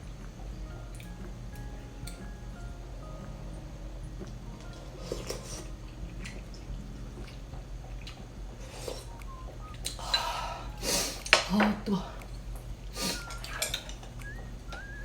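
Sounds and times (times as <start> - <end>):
slurping: 4.2 - 15.0.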